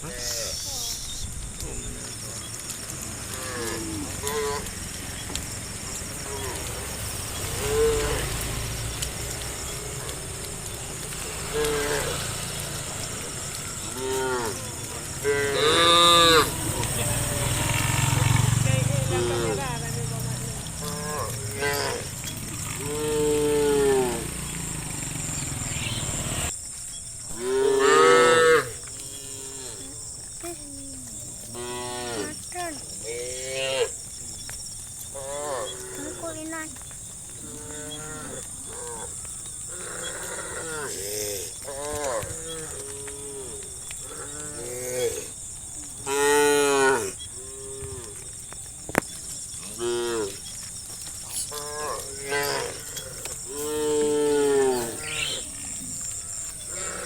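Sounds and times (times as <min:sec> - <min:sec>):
cattle mooing: 0:03.3 - 0:05.0, 0:06.2 - 0:08.6, 0:09.6 - 0:12.3, 0:12.9 - 0:19.6, 0:20.8 - 0:24.3, 0:27.3 - 0:34.0, 0:37.4 - 0:45.3, 0:46.0 - 0:48.2, 0:51.4 - 0:57.0.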